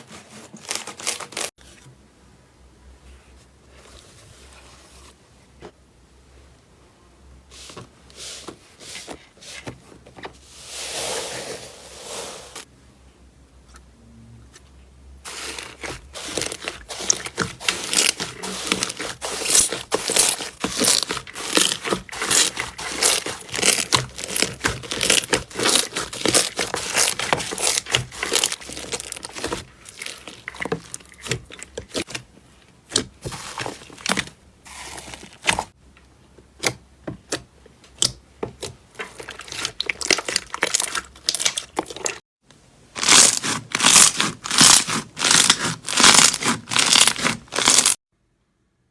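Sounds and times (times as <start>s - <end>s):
slime crackling and popping: 15.3s - 32.1s, 43.0s - 48.0s.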